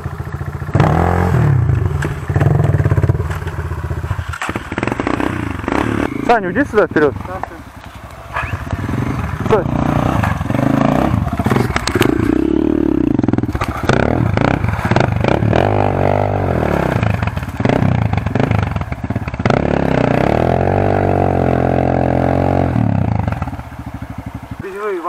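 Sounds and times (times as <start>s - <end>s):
motorcycle engine revving hard: 0.0s - 25.0s.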